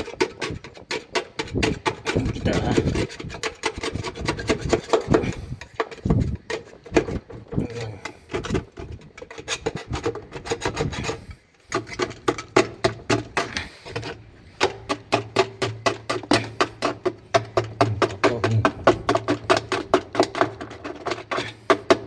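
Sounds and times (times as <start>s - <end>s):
brush scrubbing washing machine tub: 0.0s - 22.0s.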